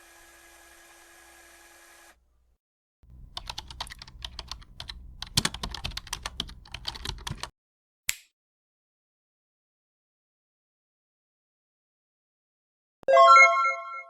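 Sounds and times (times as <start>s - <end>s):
typing on computer keyboard: 3.1s - 7.5s.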